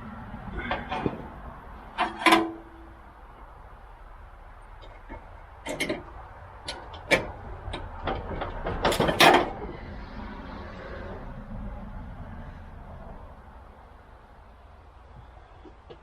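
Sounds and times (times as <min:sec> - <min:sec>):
knocks and clatter on mower: 0:00.6 - 0:03.4, 0:04.7 - 0:09.8.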